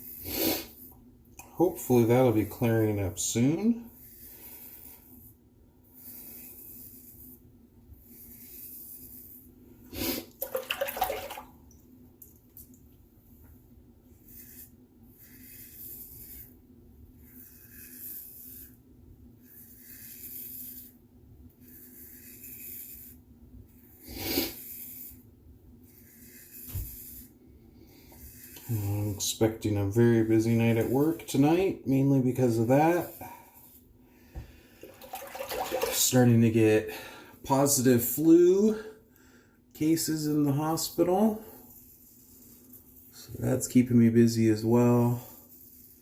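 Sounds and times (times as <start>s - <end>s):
razor scraping stubble: 8.0s - 10.3s, 14.1s - 18.8s, 19.4s - 25.2s, 25.8s - 33.8s, 39.8s - 46.0s.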